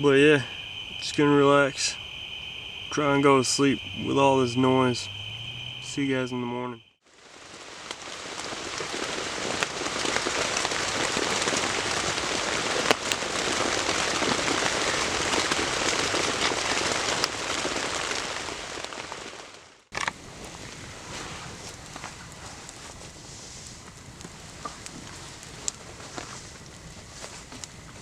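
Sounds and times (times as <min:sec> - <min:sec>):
heavy rain on tent fabric: 0:07.0 - 0:28.0.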